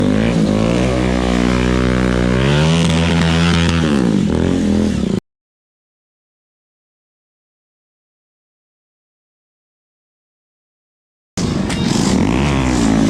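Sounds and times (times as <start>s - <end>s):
motorcycle engine revving: 0.0s - 5.2s, 11.4s - 13.0s.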